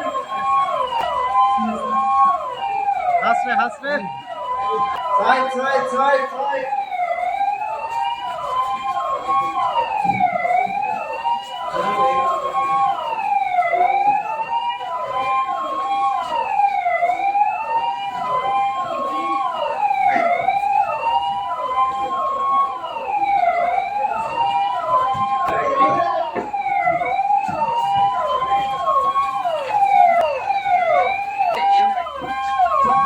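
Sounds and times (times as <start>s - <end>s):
siren fast yelp: 0.0s - 33.0s
siren slow wail: 0.0s - 33.0s.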